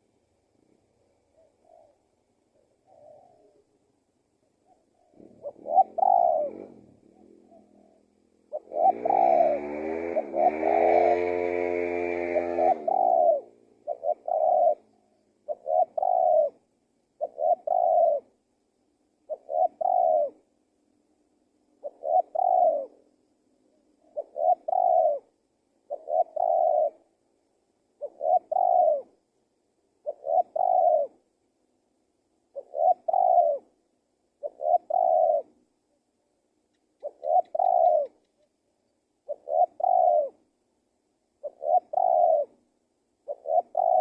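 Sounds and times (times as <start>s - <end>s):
dove cooing: 1.0s - 3.8s, 4.4s - 18.4s, 19.2s - 20.5s, 21.7s - 23.1s, 24.0s - 27.2s, 28.0s - 29.2s, 29.9s - 31.3s, 32.5s - 35.7s, 36.9s - 38.5s, 39.2s - 40.5s, 41.4s - 44.0s.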